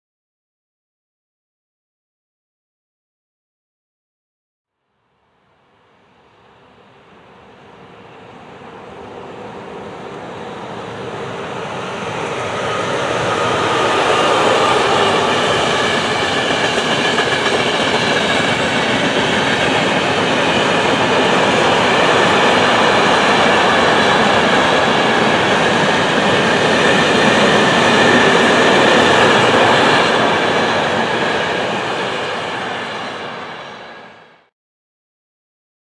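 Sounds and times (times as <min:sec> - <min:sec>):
train wheels clattering on rail: 0:06.9 - 0:34.2.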